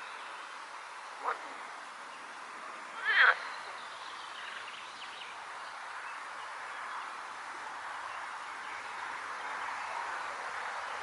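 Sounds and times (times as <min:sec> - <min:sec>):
loud animal call: 0:03.0 - 0:03.4.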